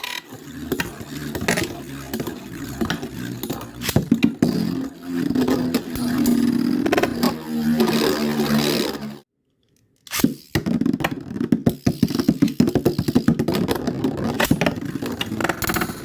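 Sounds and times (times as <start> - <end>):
spinning tops clattering: 0.0 - 9.2.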